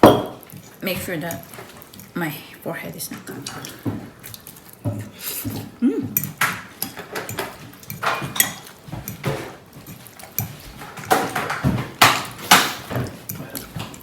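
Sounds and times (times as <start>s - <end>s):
spoons and dishes clinking: 5.4s - 14.0s.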